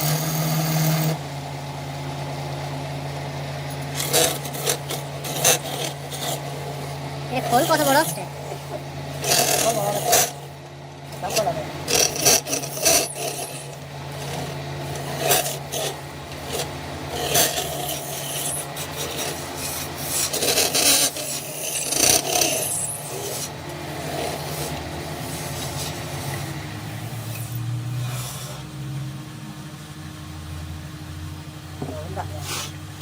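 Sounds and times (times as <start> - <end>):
steady low hum: 0.0 - 33.0
wood being sanded by hand: 3.9 - 10.6, 11.2 - 28.8, 32.1 - 32.8.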